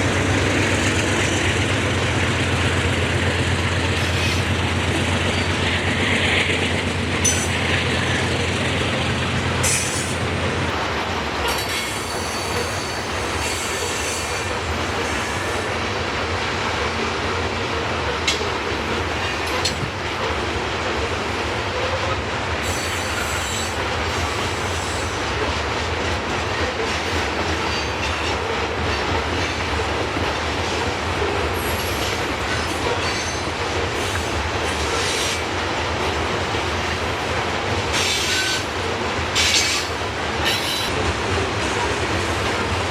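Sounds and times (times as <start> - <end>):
rumble of train cars on rails: 0.0 - 42.9.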